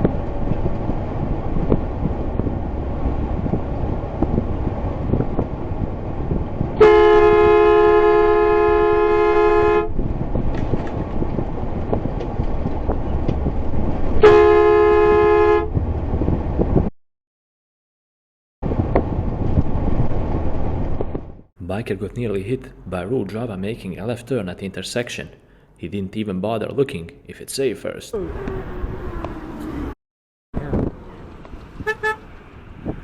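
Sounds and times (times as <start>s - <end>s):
low road noise: 0.0s - 16.9s, 18.6s - 30.0s, 30.6s - 33.0s
two-note car horn blasts: 6.8s - 10.0s, 14.2s - 15.7s, 31.8s - 32.2s.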